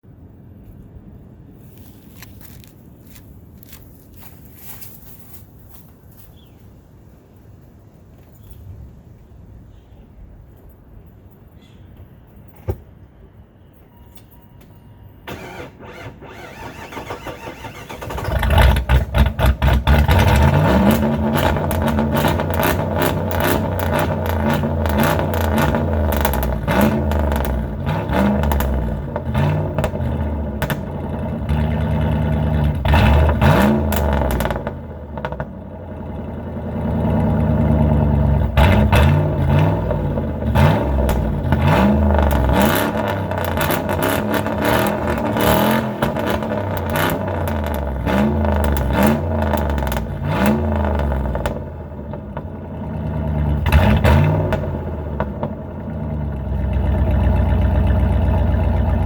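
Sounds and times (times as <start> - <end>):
car engine idling: 15.3 - 59.0
car engine revving: 15.3 - 59.0.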